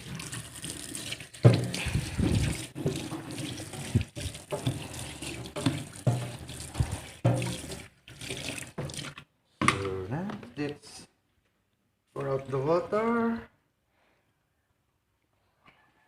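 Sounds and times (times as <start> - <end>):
water splashing: 0.0 - 9.3
tap running into sink: 1.4 - 9.9.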